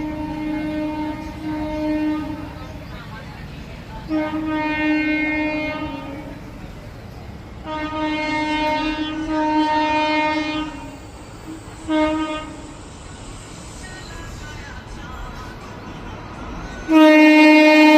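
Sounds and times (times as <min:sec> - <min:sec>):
locomotive horn blasts: 0:00.0 - 0:02.6, 0:04.1 - 0:06.4, 0:07.6 - 0:12.8, 0:16.9 - 0:17.9.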